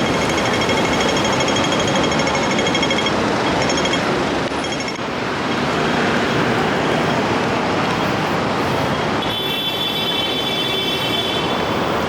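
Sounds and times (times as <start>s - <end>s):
crossing signal ticking rapidly: 0.0s - 5.1s
street traffic: 0.0s - 12.0s.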